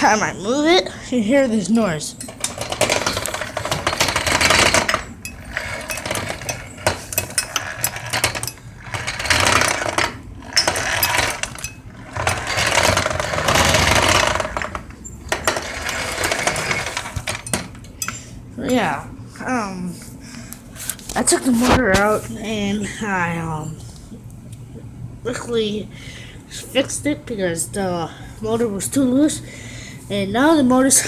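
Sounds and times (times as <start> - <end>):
scooter engine rattling and clanking: 2.3 - 17.8.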